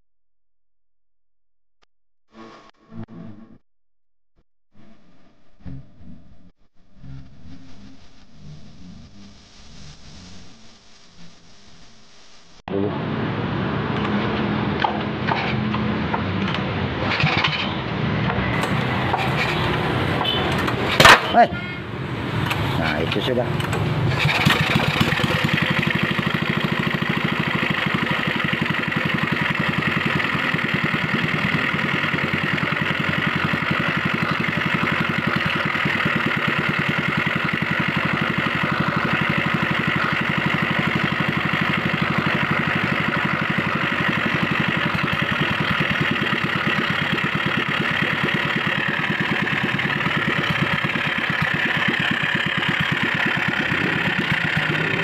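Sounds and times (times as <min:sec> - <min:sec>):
engine idling: 0:18.4 - 0:55.0.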